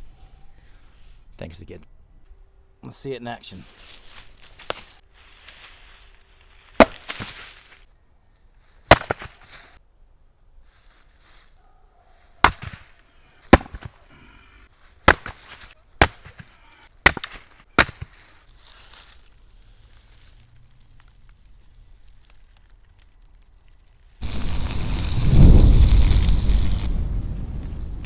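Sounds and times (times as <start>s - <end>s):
axe chopping wood: 6.8s - 7.5s, 8.9s - 9.6s, 12.4s - 14.2s, 15.0s - 18.3s.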